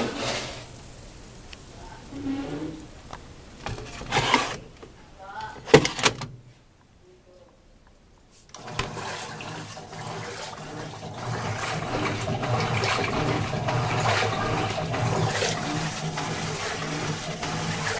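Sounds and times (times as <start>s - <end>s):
washing machine water rushing: 0.0s - 4.7s, 8.5s - 17.9s.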